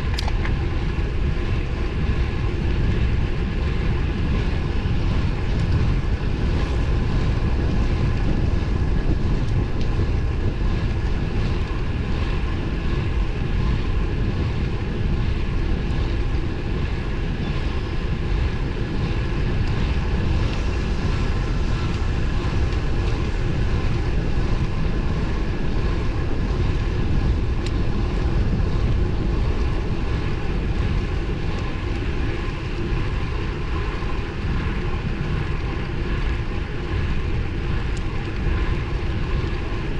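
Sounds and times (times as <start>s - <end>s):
road and tyre noise: 0.0s - 39.9s
wind rush on microphone: 0.0s - 39.9s.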